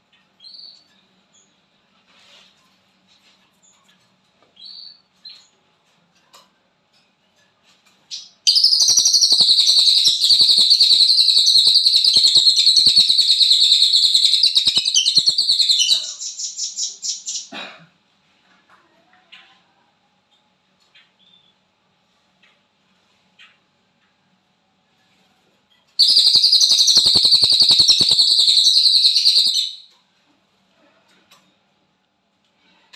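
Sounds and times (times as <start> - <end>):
songbird chirps: 8.1 - 17.5, 26.0 - 29.9
bird fast rattling trill: 8.5 - 17.5, 26.0 - 29.9.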